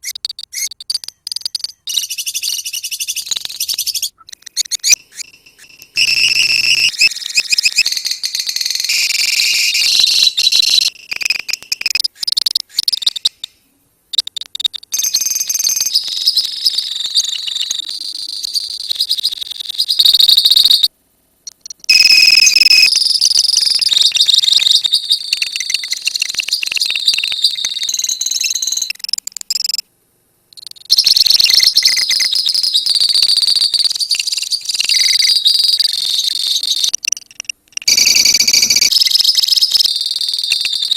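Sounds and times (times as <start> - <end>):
lovebirds chattering: 0.0 - 8.2.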